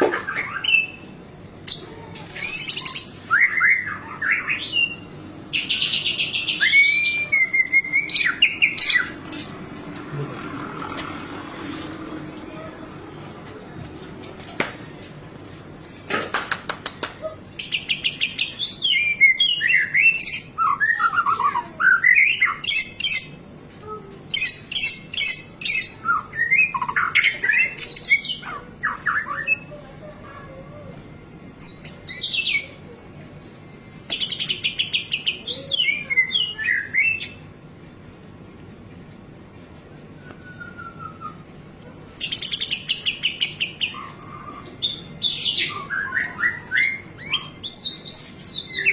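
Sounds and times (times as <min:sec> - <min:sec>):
songbird singing trills and whistles: 0:00.2 - 0:09.6, 0:17.2 - 0:32.9, 0:34.0 - 0:37.5, 0:40.2 - 0:48.9.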